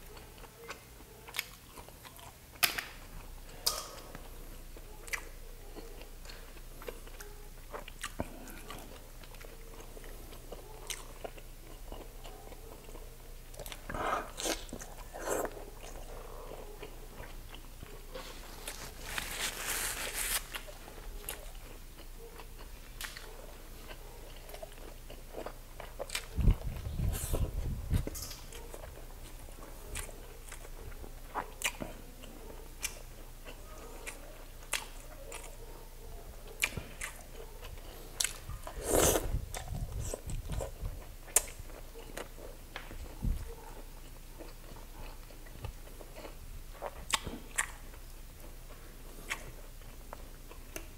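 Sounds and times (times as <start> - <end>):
wet chewing and mouth clicks: 0.1 - 50.9
paper tissue rustling: 18.1 - 21.0.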